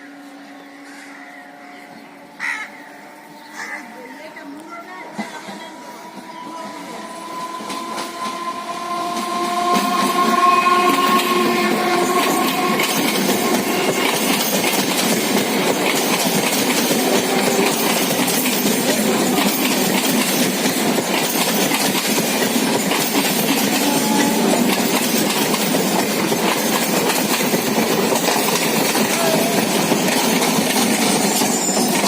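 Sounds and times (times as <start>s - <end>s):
train horn: 0.0s - 14.6s, 16.8s - 19.8s, 23.5s - 25.1s
electric train rumble: 0.0s - 32.0s
wheels clattering over rails: 7.6s - 32.0s.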